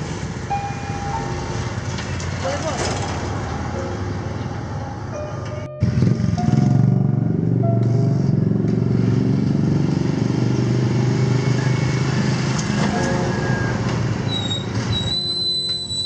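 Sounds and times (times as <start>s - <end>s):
motorcycle engine running: 5.8s - 10.2s.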